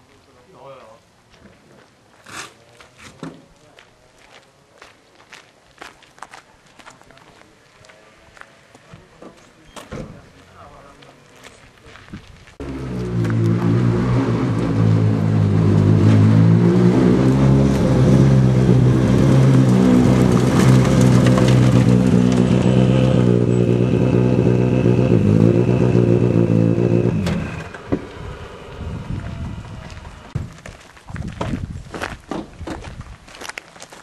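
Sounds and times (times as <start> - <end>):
rally car engine running loud: 12.6 - 30.4.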